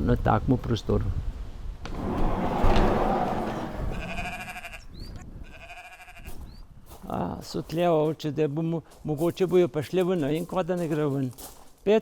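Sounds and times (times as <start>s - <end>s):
brief rushing noise: 2.0s - 4.6s
sheep bleating: 5.5s - 6.4s.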